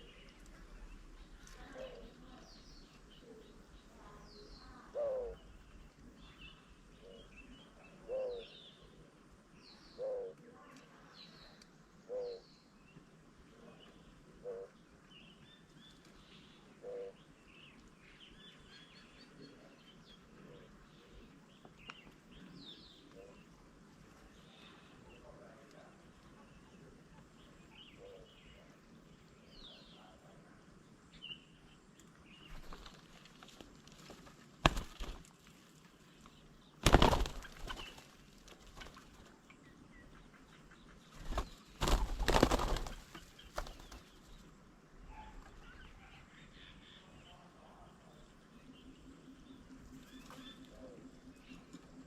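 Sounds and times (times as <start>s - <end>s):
faint bird chirps: 0.0s - 33.2s, 36.0s - 52.0s
bird wings flapping: 32.5s - 35.4s, 36.8s - 39.3s, 41.0s - 44.4s.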